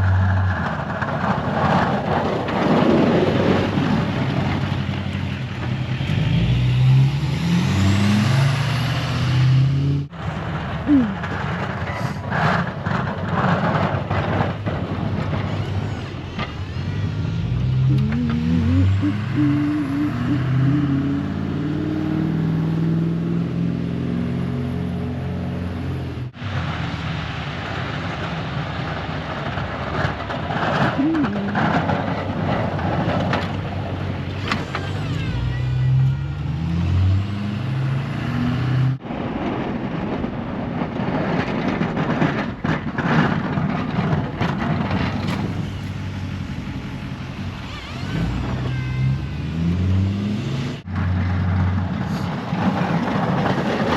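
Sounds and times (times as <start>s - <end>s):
truck engine running: 10.1s - 23.2s, 24.0s - 38.0s, 43.5s - 50.1s.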